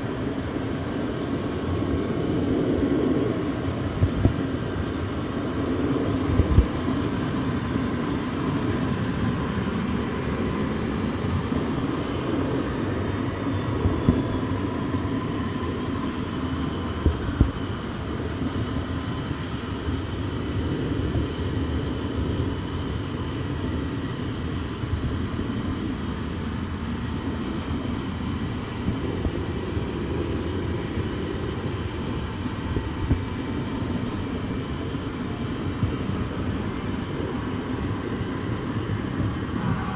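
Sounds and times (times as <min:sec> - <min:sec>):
train rumbling on rails: 0:00.0 - 0:39.9
faint high tones: 0:39.5 - 0:39.9.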